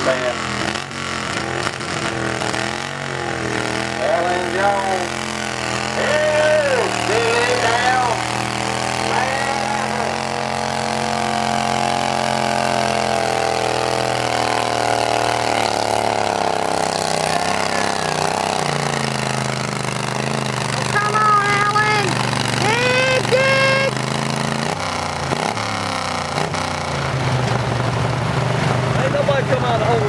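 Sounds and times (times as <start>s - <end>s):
lawn tractor engine running: 0.0s - 30.0s
voices: 4.0s - 5.2s, 5.8s - 11.3s, 14.5s - 19.6s, 20.6s - 24.0s, 29.0s - 30.0s.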